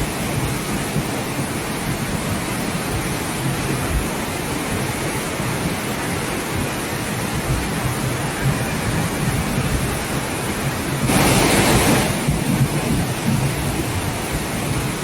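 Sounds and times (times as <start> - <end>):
heavy water rushing: 0.0 - 15.0.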